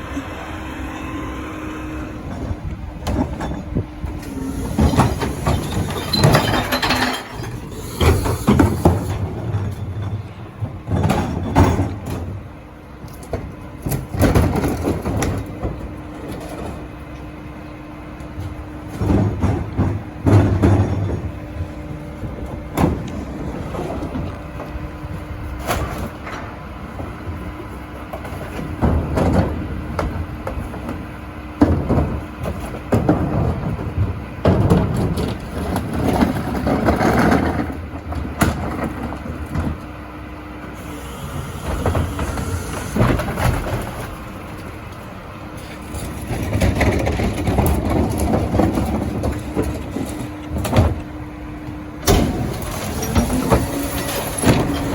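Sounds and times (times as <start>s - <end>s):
truck engine humming: 0.0s - 54.9s
recyclables clattering into hopper: 2.4s - 12.5s, 18.4s - 24.9s, 28.2s - 39.9s, 41.4s - 51.3s, 52.0s - 54.9s.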